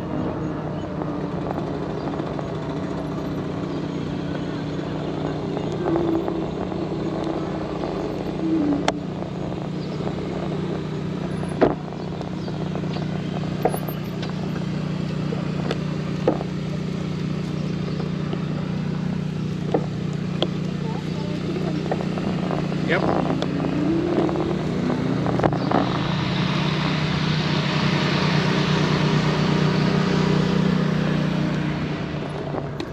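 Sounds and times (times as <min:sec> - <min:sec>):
electric bike motor hum: 0:00.0 - 0:32.9
sharp clicks and knocks: 0:15.6 - 0:16.6, 0:19.6 - 0:20.8.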